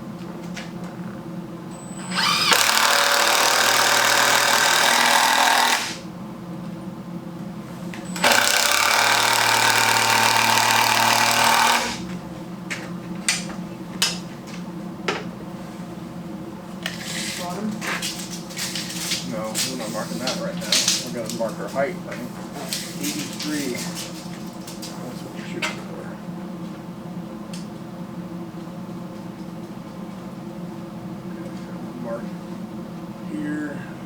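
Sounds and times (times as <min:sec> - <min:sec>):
power tool working wood: 0:01.8 - 0:06.0, 0:08.0 - 0:12.1.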